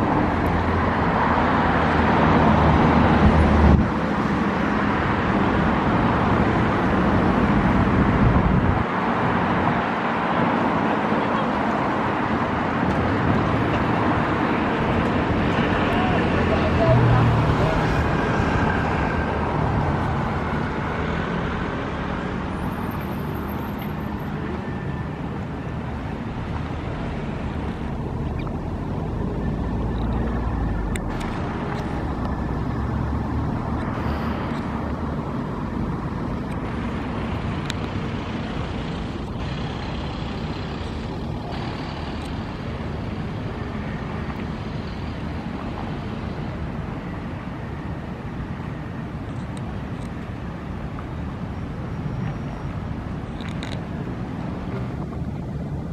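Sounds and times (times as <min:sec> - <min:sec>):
city road traffic rumble: 0:00.0 - 0:55.9
deeper vehicle rumble: 0:23.5 - 0:47.1, 0:51.4 - 0:55.9.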